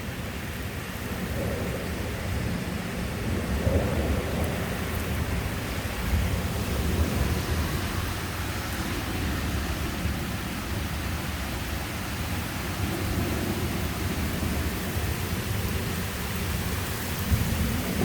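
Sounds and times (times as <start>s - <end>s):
heavy rain and wind hiss: 0.0s - 18.0s
deep thunder rumble: 1.1s - 10.2s, 12.8s - 18.0s.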